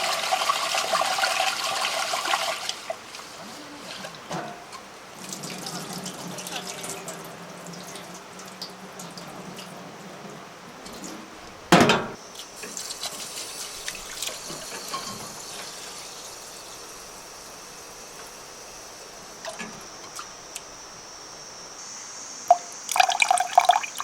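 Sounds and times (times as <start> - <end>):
water trickling and splashing: 12.6 - 17.0, 22.9 - 24.0.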